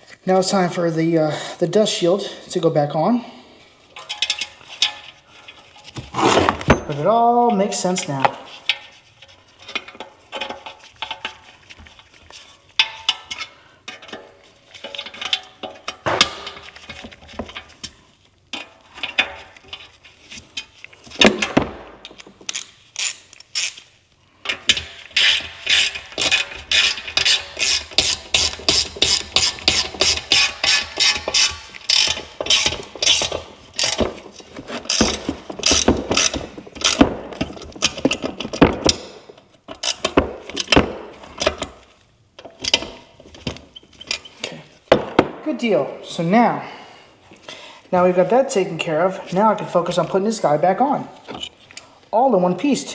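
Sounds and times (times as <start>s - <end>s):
hand ratchet clicking: 22.1s - 23.9s, 24.7s - 34.1s.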